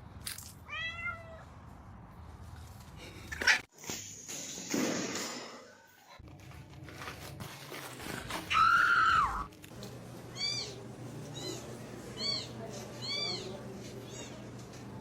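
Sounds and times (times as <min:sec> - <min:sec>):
cat meowing: 0:00.7 - 0:01.4.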